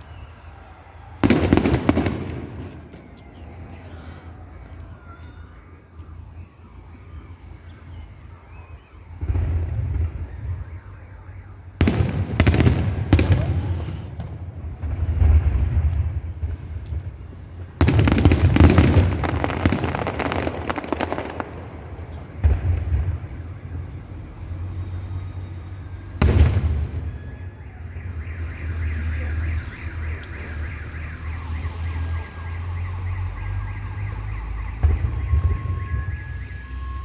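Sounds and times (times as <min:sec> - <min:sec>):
fireworks crackling: 0:00.0 - 0:37.0
firework bang: 0:01.1 - 0:03.0, 0:11.8 - 0:23.9, 0:26.2 - 0:27.5, 0:34.0 - 0:36.2.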